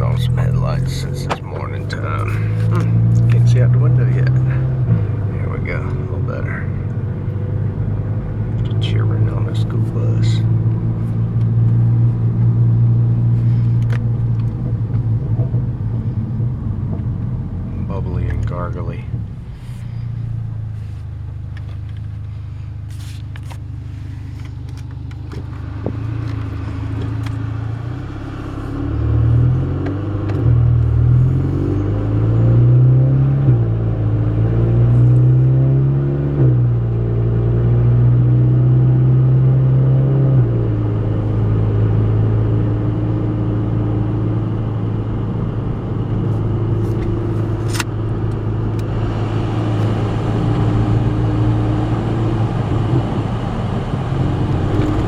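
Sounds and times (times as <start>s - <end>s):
car engine drone from cabin: 0.0s - 55.0s.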